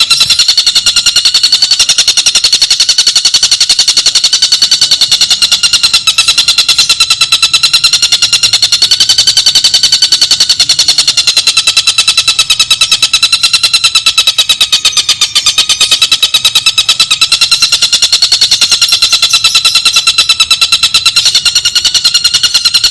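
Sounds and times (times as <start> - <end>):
bird rattling trill: 0.0 - 22.9.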